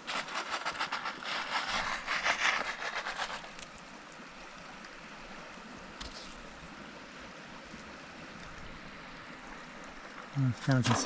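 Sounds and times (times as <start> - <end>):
crackling and splashing: 0.0 - 6.7
creek running: 0.0 - 11.0.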